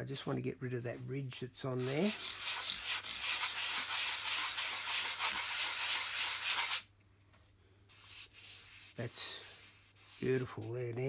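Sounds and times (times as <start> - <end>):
sanding block scratching foam: 1.8 - 6.8, 7.9 - 10.8.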